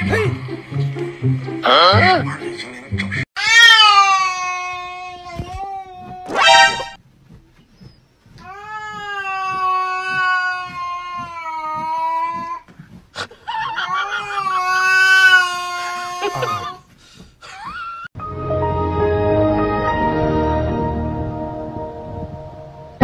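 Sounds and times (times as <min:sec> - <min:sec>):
music: 0:00.0 - 0:03.2, 0:18.2 - 0:23.0
cat yowling: 0:03.4 - 0:06.4, 0:13.9 - 0:16.7.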